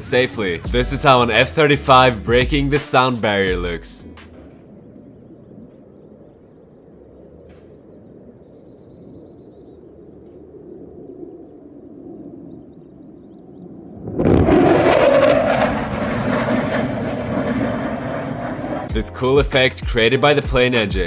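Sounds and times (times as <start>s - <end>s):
distant jet rumble: 0.0s - 21.0s
bird chirps: 4.9s - 10.0s, 11.5s - 14.1s.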